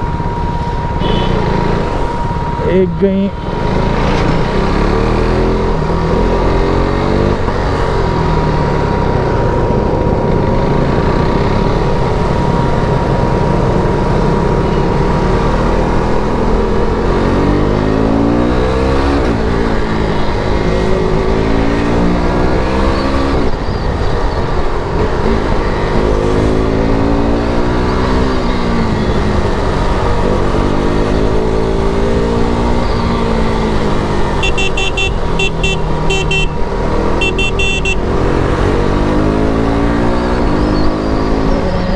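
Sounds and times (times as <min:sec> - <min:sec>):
motorcycle engine revving: 0:29.1 - 0:41.4.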